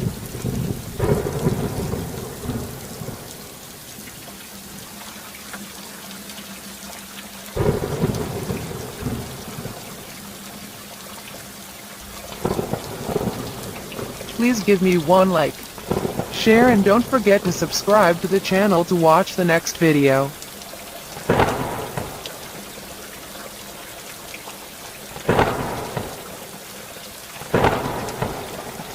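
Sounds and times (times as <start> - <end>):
thunderclap: 0.0 - 3.4, 12.4 - 17.2, 21.2 - 22.4, 25.3 - 26.3, 27.5 - 28.9
steady rain hiss: 0.0 - 28.9
loud cracks: 21.3 - 22.5, 25.3 - 26.4, 27.5 - 28.9.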